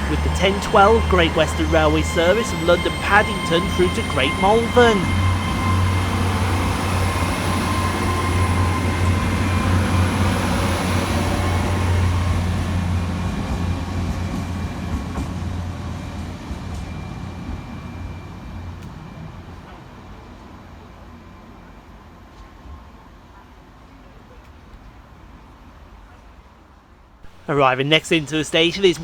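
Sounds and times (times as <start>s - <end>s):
train diesel engine hum: 0.0s - 17.4s, 27.2s - 29.0s.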